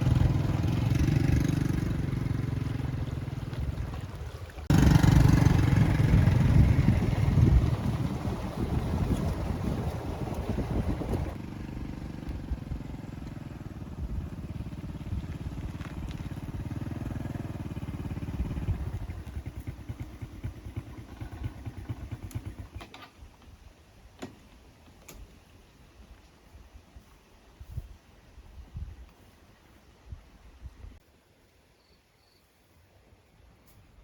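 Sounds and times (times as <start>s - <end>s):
vehicle engine running: 0.0s - 22.8s.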